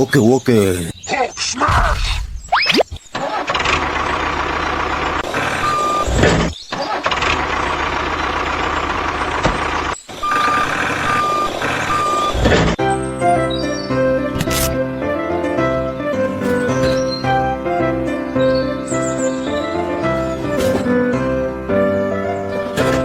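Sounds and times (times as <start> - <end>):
truck engine running: 3.2 - 23.0
reversing alarm beeps: 5.6 - 6.2, 10.2 - 12.4
music: 12.8 - 23.0.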